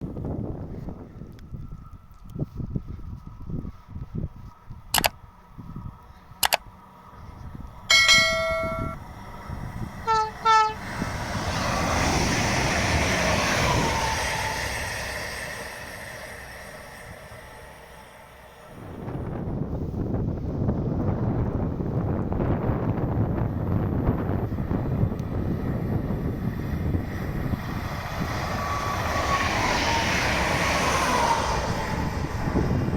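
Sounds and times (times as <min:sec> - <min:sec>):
train passing at speed: 0:04.5 - 0:32.9
sharp clicks: 0:05.0 - 0:05.2, 0:06.4 - 0:06.6
train horn blasts: 0:10.0 - 0:10.9.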